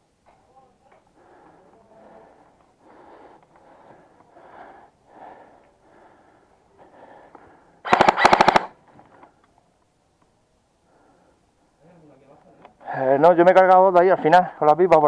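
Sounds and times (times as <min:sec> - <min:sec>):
airsoft gun full-auto burst: 0:07.8 - 0:08.8.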